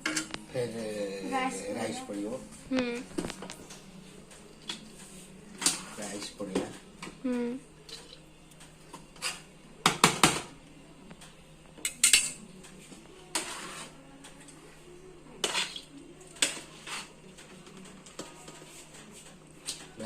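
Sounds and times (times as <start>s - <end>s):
metal utensils clanking on a pot: 11.8s - 12.4s.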